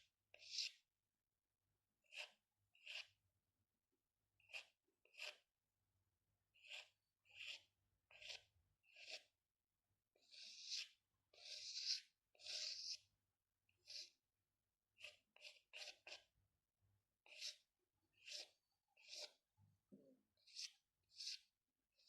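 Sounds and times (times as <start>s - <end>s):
pencil strokes scratching paper: 0.0s - 0.8s, 2.0s - 3.2s, 4.4s - 5.5s, 6.6s - 9.4s, 10.2s - 13.1s, 13.7s - 14.2s, 14.9s - 16.4s, 17.2s - 19.5s, 20.3s - 22.0s.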